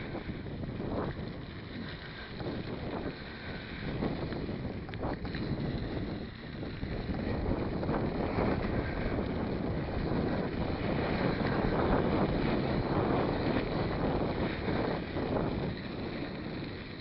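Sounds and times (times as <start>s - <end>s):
bike riding noise: 0.0s - 17.0s
wind over microphone: 0.0s - 17.0s
faint clicks: 1.1s - 9.3s.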